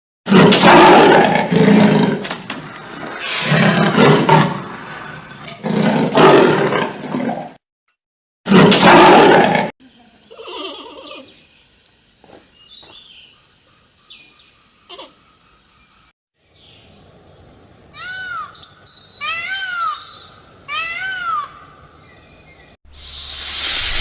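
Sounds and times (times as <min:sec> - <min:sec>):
animal calling: 0:10.3 - 0:11.4.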